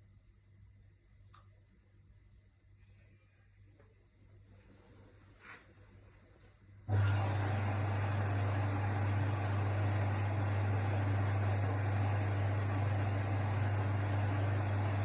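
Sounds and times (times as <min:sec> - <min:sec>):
washing machine humming and whirring: 0:04.2 - 0:15.0.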